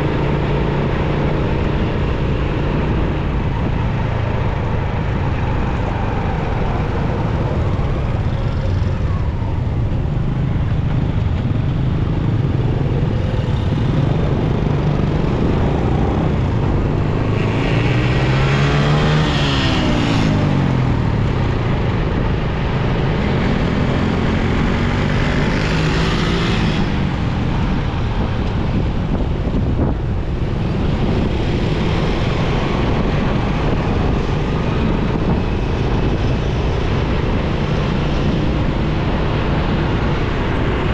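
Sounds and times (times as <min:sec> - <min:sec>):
motorcycle engine: 0:00.0 - 0:29.7
city traffic noise: 0:00.0 - 0:40.9.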